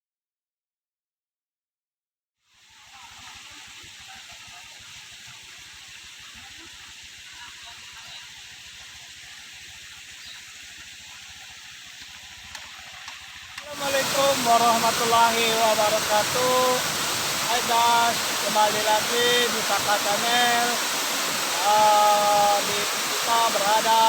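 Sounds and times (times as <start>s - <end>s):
waterfall rushing: 13.6s - 24.0s.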